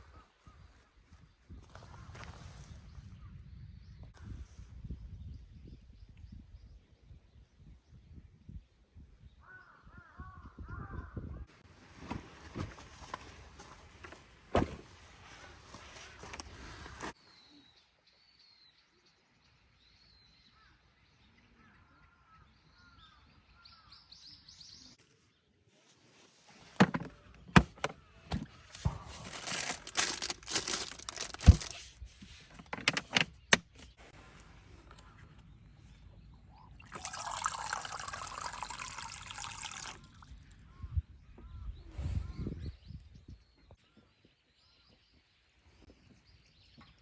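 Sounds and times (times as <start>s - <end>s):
rustling: 25.8s - 34.9s
liquid pouring: 36.7s - 40.3s.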